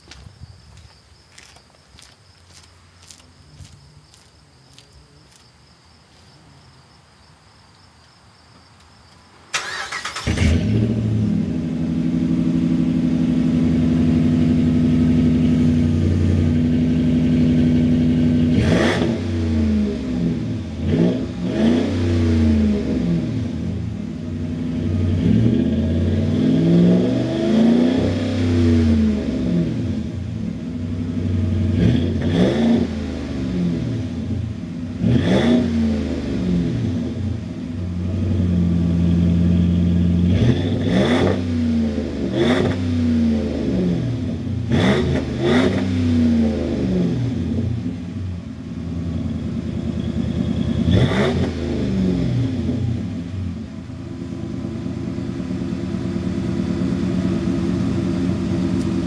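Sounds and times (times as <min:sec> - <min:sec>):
crickets chirping: 0:00.0 - 0:10.2
truck engine starting: 0:09.5 - 0:15.1
v eight engine idling and revving: 0:09.5 - 0:59.0.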